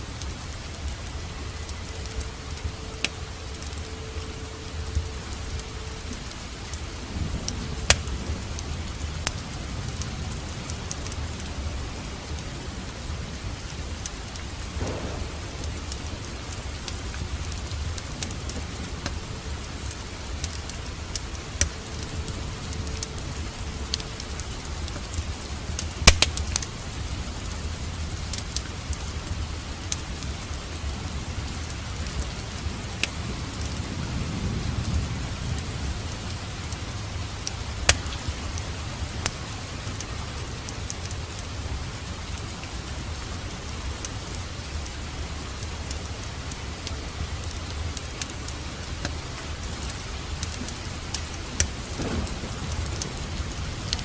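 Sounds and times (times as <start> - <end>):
low rumble: 0.0 - 44.3
steady rain: 0.0 - 54.0
wood fire crackling: 0.0 - 54.0.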